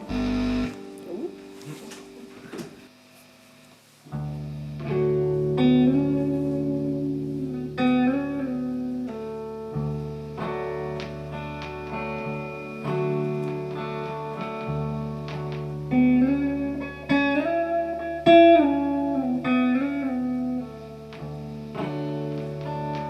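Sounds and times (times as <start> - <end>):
low bass notes: 0.0 - 1.4
guitar with bent sliding notes: 0.0 - 3.1, 4.1 - 23.0.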